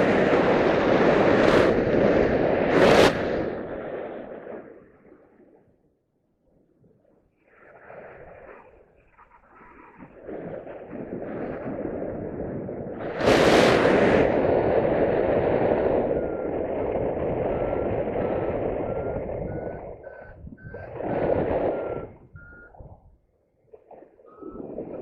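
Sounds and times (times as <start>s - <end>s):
wind rush on microphone: 0.0s - 5.2s, 7.4s - 25.0s
variometer beeping: 16.0s - 22.9s, 24.2s - 25.0s.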